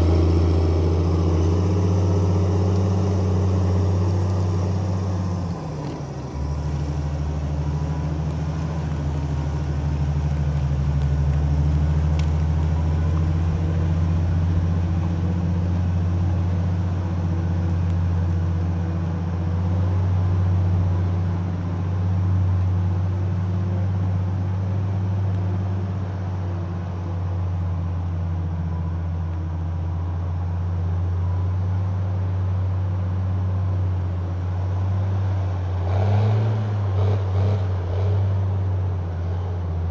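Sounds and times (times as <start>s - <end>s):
heavy diesel engine droning: 0.0s - 24.4s.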